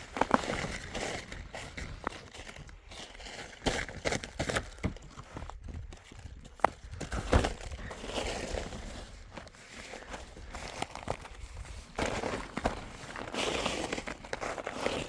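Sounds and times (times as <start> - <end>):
rustling: 0.0 - 15.0.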